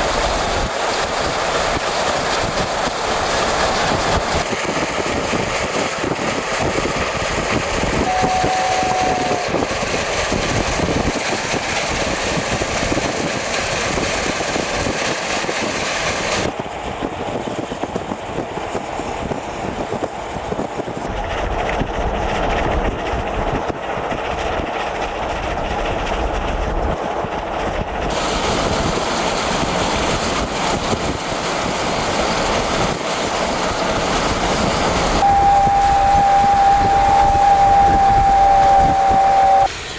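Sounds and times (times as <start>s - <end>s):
rail noise: 0.0s - 39.9s
steam locomotive exhaust beats: 0.0s - 39.9s
train whistle: 8.0s - 9.7s, 35.2s - 39.7s.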